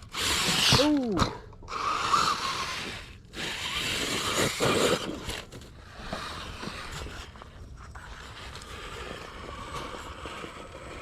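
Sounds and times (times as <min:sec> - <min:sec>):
electric motor whirring: 0:00.0 - 0:01.0, 0:01.7 - 0:05.4
tyres scraping on rock: 0:00.0 - 0:11.0.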